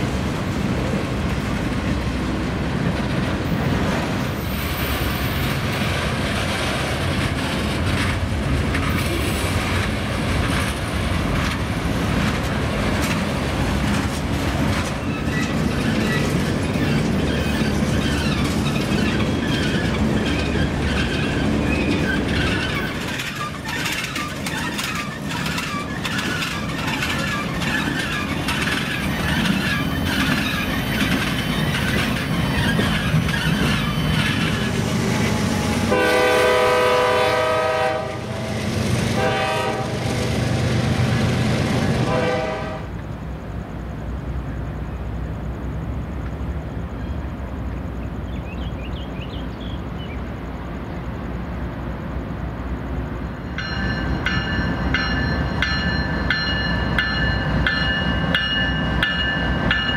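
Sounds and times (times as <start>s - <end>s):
train wheel and rail noise: 0.0s - 59.9s
locomotive horn blasts: 35.9s - 38.3s, 39.2s - 40.0s, 42.0s - 42.9s.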